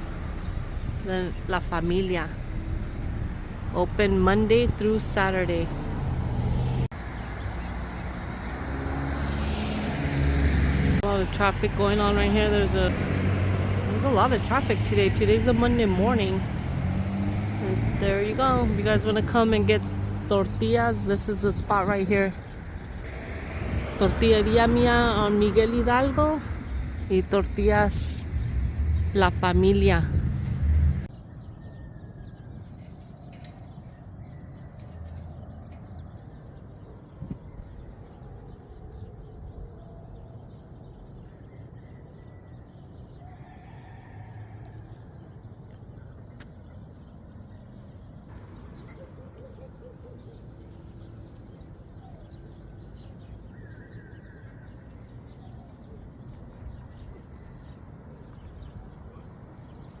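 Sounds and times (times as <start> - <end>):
distant traffic hum: 0.0 - 60.0
bird chirps: 44.8 - 60.0.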